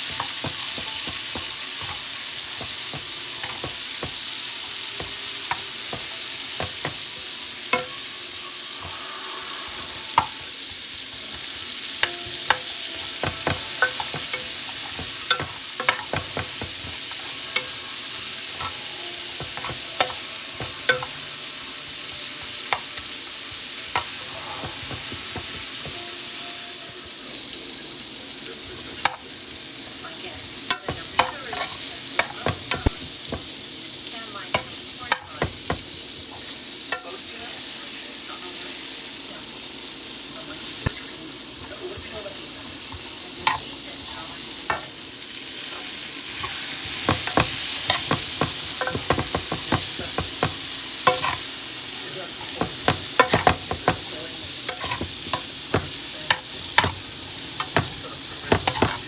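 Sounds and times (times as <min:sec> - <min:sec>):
food sizzling in hot oil: 0:00.0 - 0:59.0
oil popping: 0:09.7 - 0:26.0, 0:46.3 - 0:59.0.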